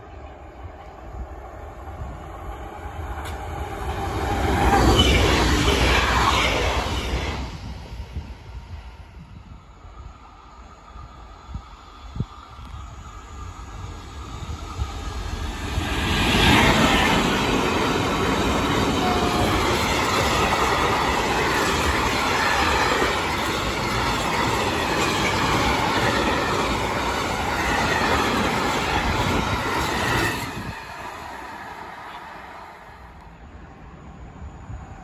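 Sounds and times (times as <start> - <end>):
train wheels rumbling and clattering: 12.1 - 32.2.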